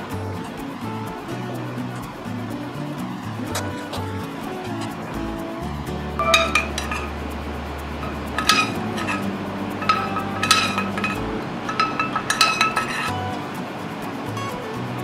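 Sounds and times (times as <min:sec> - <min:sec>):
soft background music: 0:00.0 - 0:15.0
metal spoon clinking on ceramic plate: 0:06.2 - 0:07.1, 0:08.0 - 0:13.2.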